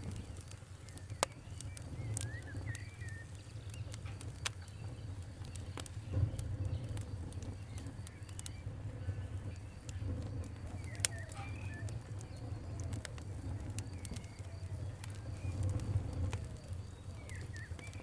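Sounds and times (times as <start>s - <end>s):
wood fire crackling: 0.0s - 18.0s
bird chirping: 0.1s - 18.0s.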